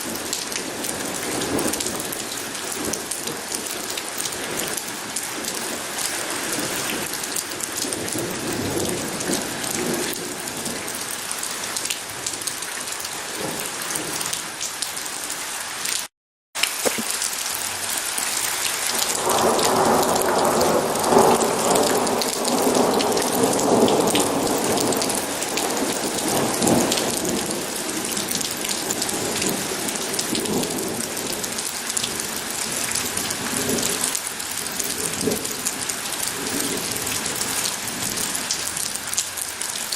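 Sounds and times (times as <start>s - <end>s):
heavy rain falling: 0.0s - 39.9s
rolling thunder: 19.0s - 32.2s.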